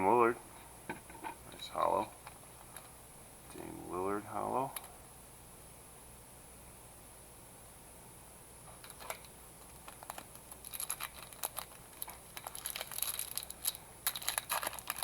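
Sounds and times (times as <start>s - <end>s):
trading cards crinkling and clicking: 8.7s - 15.0s.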